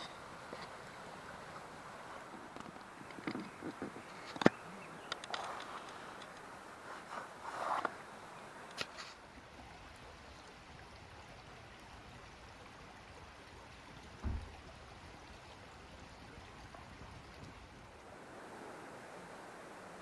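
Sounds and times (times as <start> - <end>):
river water flowing: 0.0 - 3.0, 9.1 - 20.0
low thump: 9.2 - 17.9
short knocks and rustles: 9.2 - 18.0.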